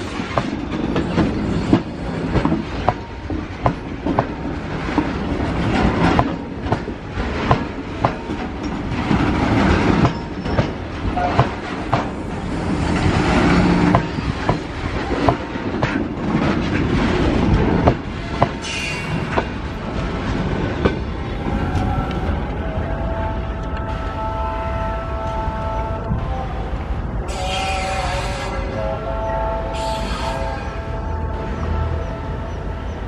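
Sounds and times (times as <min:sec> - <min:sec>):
train wheels clacking over rail joints: 0:00.0 - 0:22.6.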